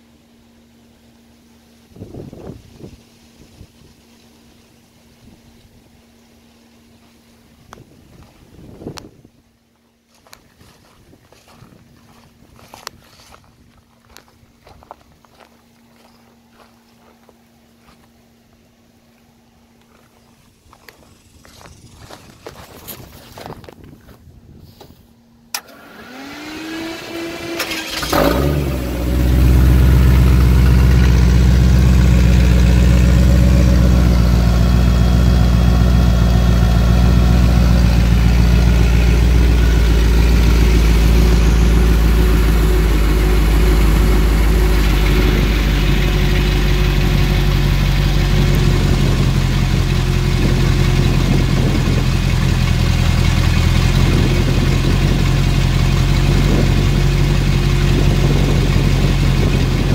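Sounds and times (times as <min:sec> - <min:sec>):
starter motor whine: 0:25.5 - 0:59.9
vee eight engine starting and idling: 0:25.5 - 0:59.9.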